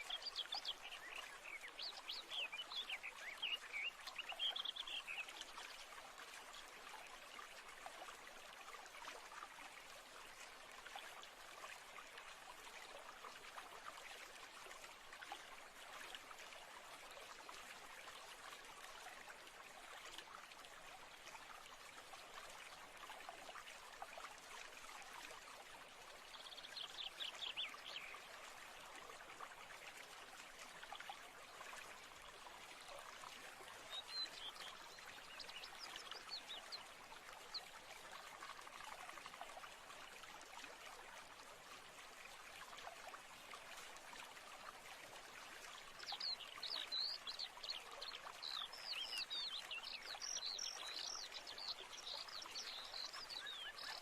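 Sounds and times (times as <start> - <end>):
stream trickling: 0.0 - 54.0.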